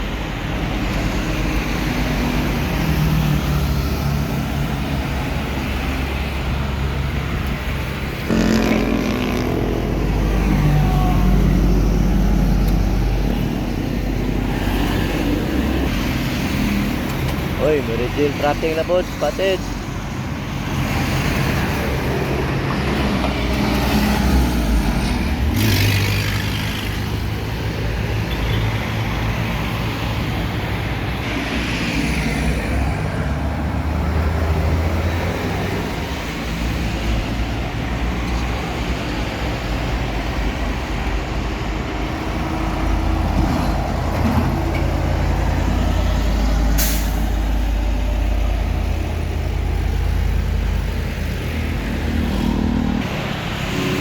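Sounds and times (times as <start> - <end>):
diesel trucks droning: 0.0 - 54.0
truck air brake hisses: 46.7 - 47.5.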